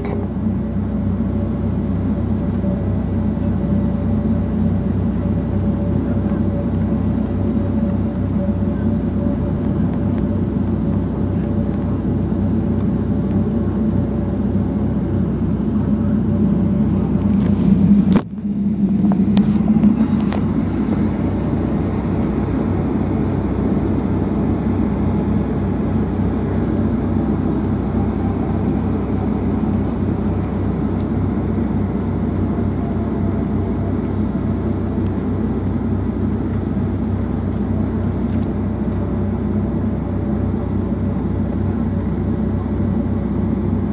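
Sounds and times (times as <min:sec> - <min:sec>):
jet engines low rumble: 0:00.0 - 0:43.9.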